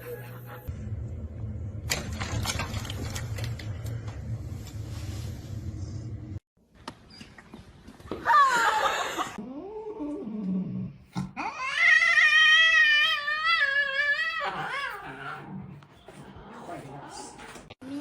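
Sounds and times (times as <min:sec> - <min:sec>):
cat yowling: 0:11.4 - 0:15.0.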